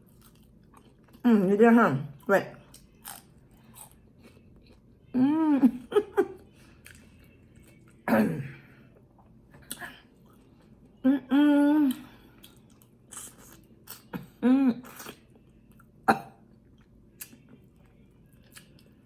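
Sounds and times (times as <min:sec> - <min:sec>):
woman chewing food: 0:00.0 - 0:01.3, 0:02.2 - 0:08.0, 0:08.9 - 0:19.0
woman humming mmm: 0:05.1 - 0:05.9, 0:11.0 - 0:12.2, 0:14.2 - 0:15.1.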